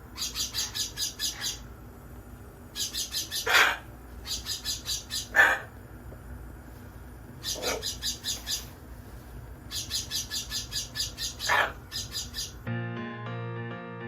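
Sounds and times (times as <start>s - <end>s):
parrot chirping rapidly: 0.0s - 1.7s, 2.7s - 5.7s, 7.4s - 8.8s, 9.7s - 12.7s
parrot squawks: 0.1s - 1.7s, 2.8s - 5.7s, 7.4s - 8.7s, 9.7s - 12.6s.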